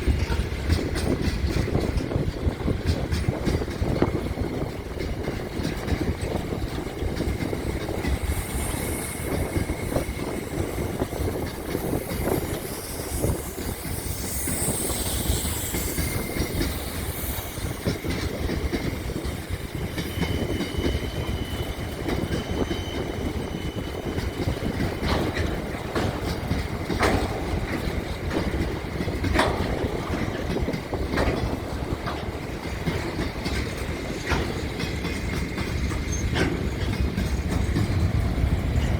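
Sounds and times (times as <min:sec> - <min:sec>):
train rumbling on rails: 0:00.0 - 0:38.9
wheels clicking: 0:00.0 - 0:38.9
faint high squeal: 0:11.8 - 0:18.4, 0:19.8 - 0:24.4.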